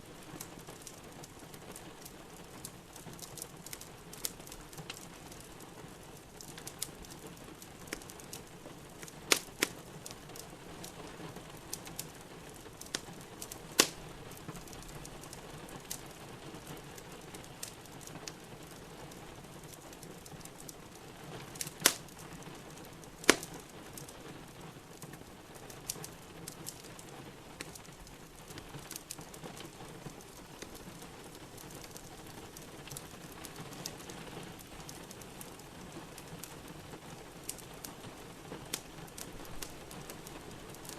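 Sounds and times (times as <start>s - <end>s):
rain pattering: 0.0s - 40.9s
wood fire crackling: 0.0s - 40.9s
loud sharp fire pops: 9.0s - 9.8s, 12.8s - 14.0s, 21.6s - 22.2s, 23.2s - 23.7s.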